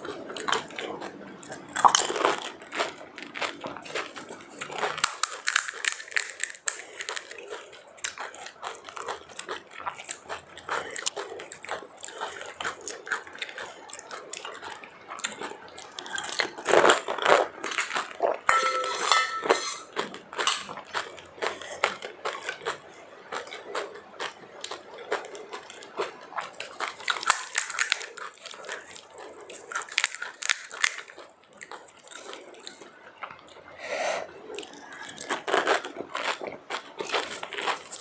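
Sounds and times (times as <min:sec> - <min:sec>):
chewing: 0:00.0 - 0:38.0
spoon clinking on plate: 0:18.5 - 0:19.9.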